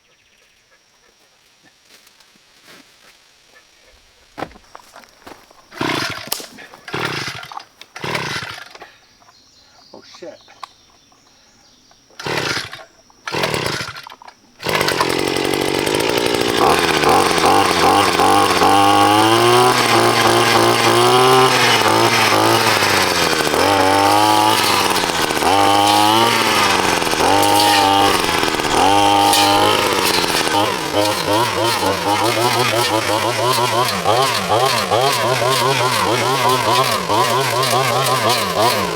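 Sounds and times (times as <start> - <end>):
chainsaw cutting wood: 5.6 - 8.8, 12.1 - 38.9.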